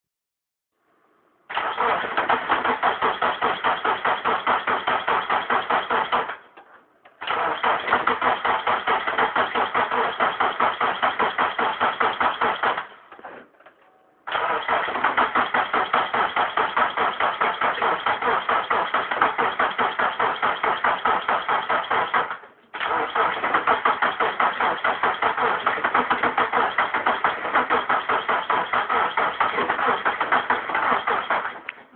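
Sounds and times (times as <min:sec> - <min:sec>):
starter motor cranking engine: 0:01.5 - 0:06.4, 0:07.2 - 0:13.0, 0:14.3 - 0:31.7.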